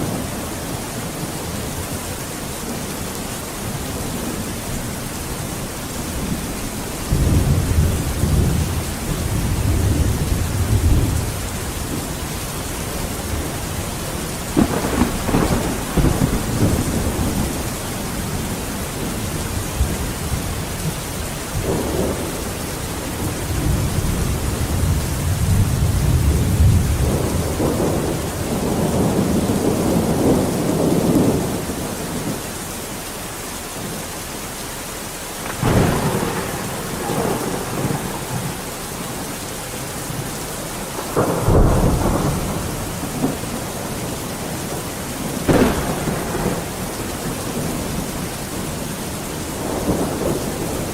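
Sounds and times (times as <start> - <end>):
steady rain: 0.0 - 50.9
thunder rumbling: 3.6 - 32.4, 35.4 - 50.9
sharp thunder crack: 6.3 - 11.3, 14.5 - 17.8, 35.4 - 39.3, 41.0 - 43.7, 45.3 - 48.3.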